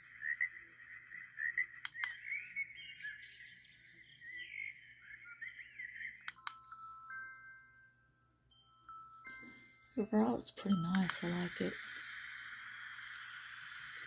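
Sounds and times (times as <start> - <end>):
birds chirping from small speaker: 0.0 - 7.4, 9.2 - 14.0
chiming lullaby tones: 5.0 - 13.0.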